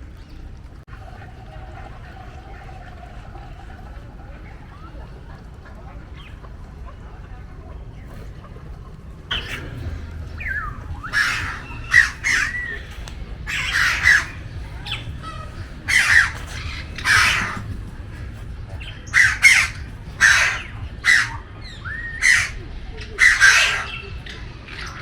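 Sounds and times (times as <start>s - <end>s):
birds squawking harshly: 1.2s - 25.0s
swooping whistled bird notes: 9.2s - 25.0s.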